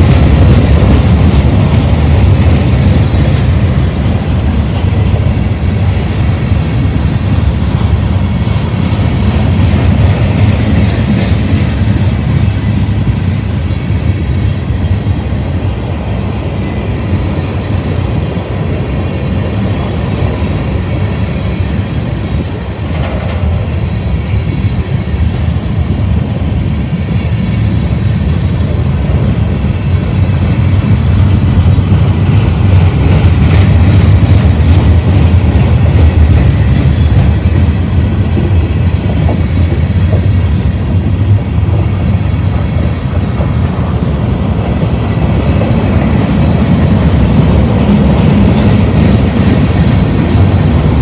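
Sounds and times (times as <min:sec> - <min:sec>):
freight train wheels clattering on rails: 0:00.0 - 0:51.0.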